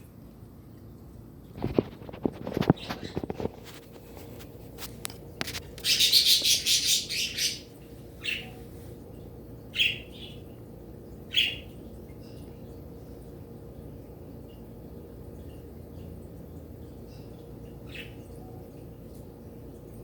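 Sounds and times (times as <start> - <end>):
small birds chirping: 5.6 - 12.9, 16.8 - 19.2.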